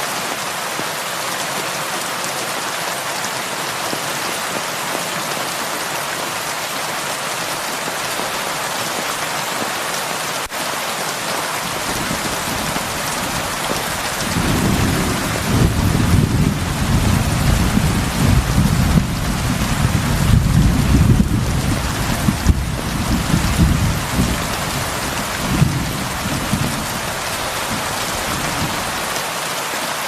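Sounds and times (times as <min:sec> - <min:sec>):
heavy rain falling: 0:00.0 - 0:30.0
thunder rumbling: 0:11.7 - 0:29.0.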